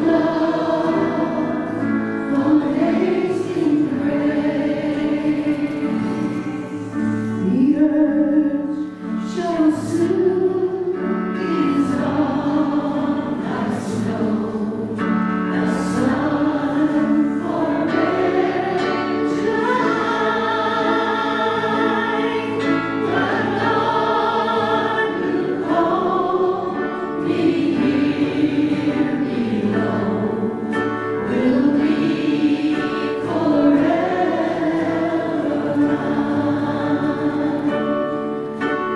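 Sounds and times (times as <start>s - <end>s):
choir singing a hymn: 0.0s - 38.9s.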